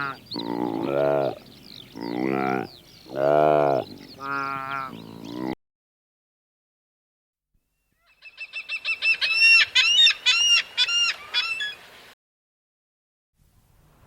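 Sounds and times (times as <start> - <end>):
fowl calling: 0.0 - 1.4, 2.0 - 5.6.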